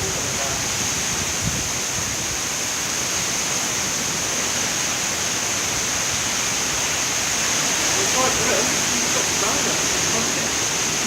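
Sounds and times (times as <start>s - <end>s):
strong wind blowing: 0.0s - 11.0s.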